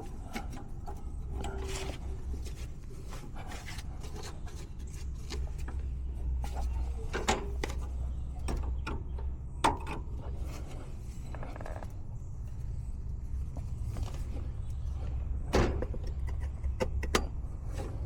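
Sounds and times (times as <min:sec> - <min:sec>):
tools clicking and knocking: 0:15.8 - 0:17.4.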